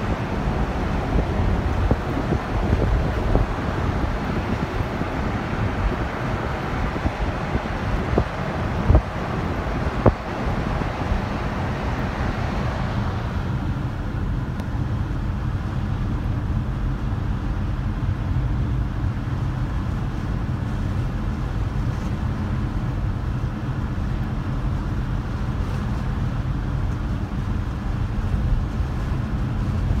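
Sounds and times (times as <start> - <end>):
car engine and tyres rumbling: 0.0 - 30.0.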